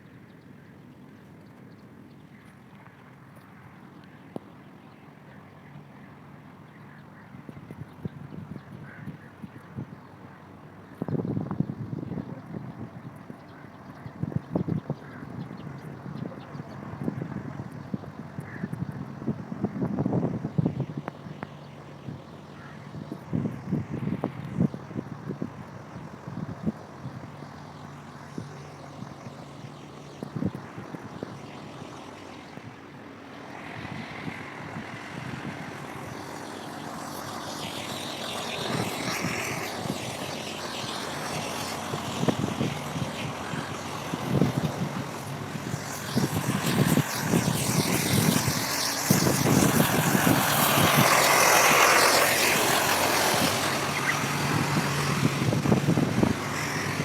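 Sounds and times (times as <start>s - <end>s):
passing vehicle engine: 20.2s - 57.0s.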